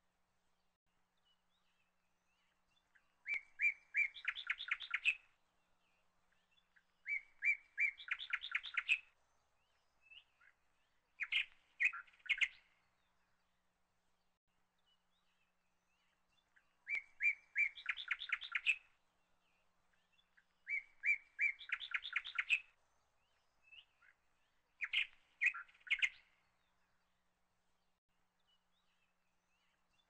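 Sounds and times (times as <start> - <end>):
small bird chirping and trilling: 2.3 - 5.3, 6.4 - 9.2, 11.2 - 12.7, 15.9 - 19.0, 20.0 - 26.5.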